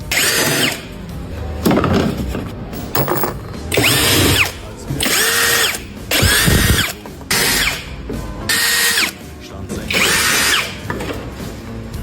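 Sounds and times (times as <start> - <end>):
power tool motor whining: 0.0 - 0.9, 3.7 - 9.2, 9.9 - 10.9.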